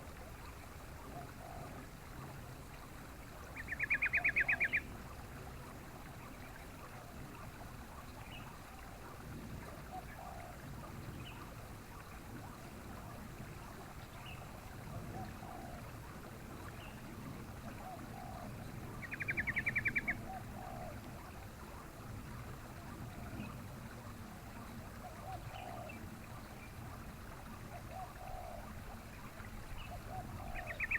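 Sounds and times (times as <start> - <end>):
steady background hiss: 0.0 - 30.9.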